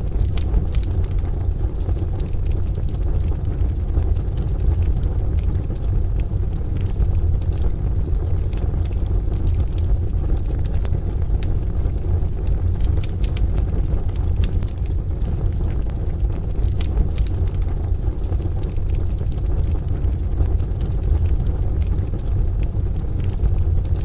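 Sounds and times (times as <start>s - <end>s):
rain and thunder: 0.0s - 24.0s
wood fire crackling and popping: 0.0s - 24.0s.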